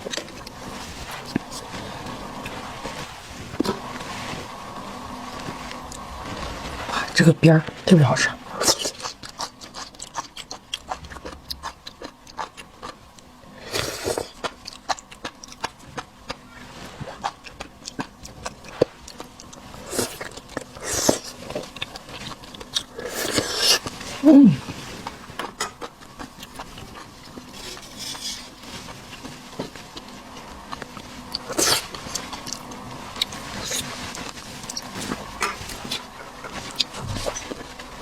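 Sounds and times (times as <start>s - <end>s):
wet chewing: 8.6s - 38.0s
person humming: 24.2s - 24.7s.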